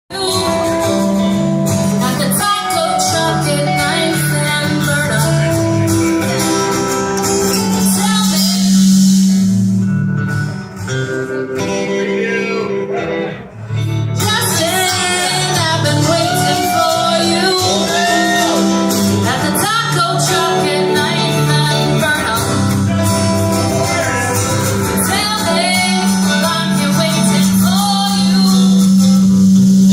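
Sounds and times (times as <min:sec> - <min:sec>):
live rock band playing: 0:00.1 - 0:29.9
person singing: 0:14.2 - 0:29.9.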